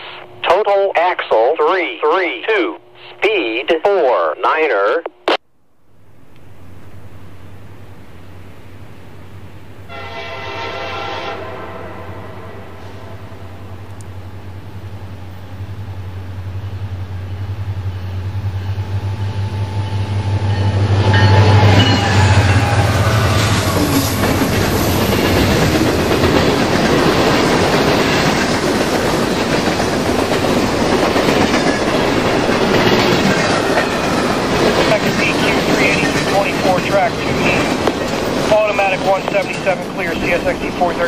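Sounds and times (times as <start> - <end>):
diesel locomotive engine hum: 5.8 - 41.0
train wheel clatter: 19.8 - 41.0.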